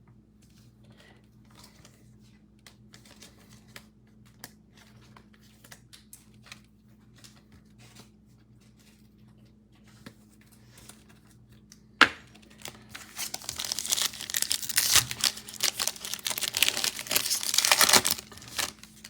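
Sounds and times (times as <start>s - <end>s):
card pack wrapper ripping: 12.3s - 19.0s
wrapper crinkling and tearing: 12.3s - 19.0s.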